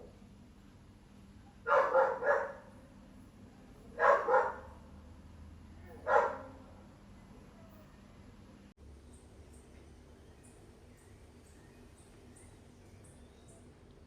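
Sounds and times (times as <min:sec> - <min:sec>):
dog barking: 0:01.7 - 0:02.7, 0:04.0 - 0:04.7, 0:06.0 - 0:06.6.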